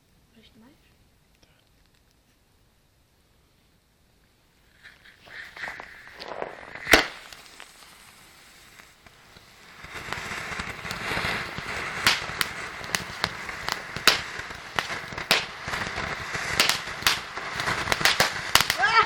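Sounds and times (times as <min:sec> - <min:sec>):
fire crackling: 0:00.0 - 0:19.0
rushing fire noise: 0:04.5 - 0:19.0
loud pops and bangs: 0:04.8 - 0:08.2, 0:08.8 - 0:19.0.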